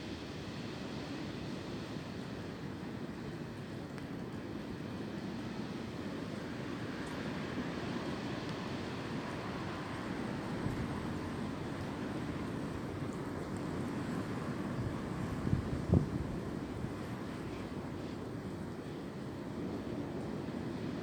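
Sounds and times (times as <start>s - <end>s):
wind blowing: 14.2s - 17.2s.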